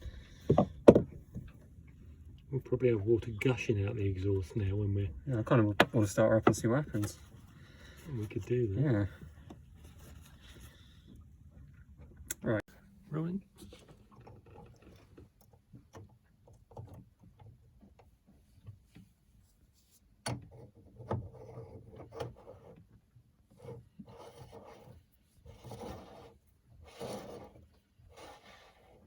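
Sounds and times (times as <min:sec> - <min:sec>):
hands rubbing and scraping parts: 0:23.5 - 0:29.0.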